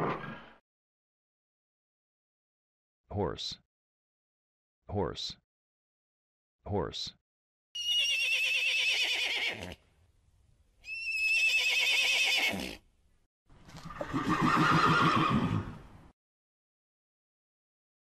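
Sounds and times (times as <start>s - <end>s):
horse whinnying: 7.8s - 9.8s, 10.8s - 12.8s, 13.8s - 15.8s.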